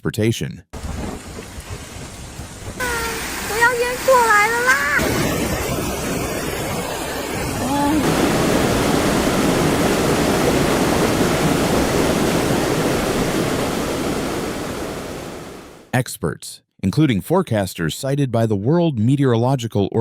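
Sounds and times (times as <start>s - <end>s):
typhoon wind roaring: 0.8s - 15.8s
rushing water: 0.8s - 15.9s.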